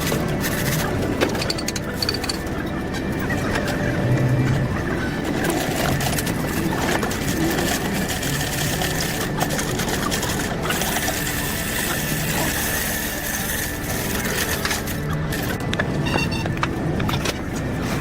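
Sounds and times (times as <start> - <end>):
workshop tools clattering: 0.0 - 4.2
machinery running: 0.0 - 18.0.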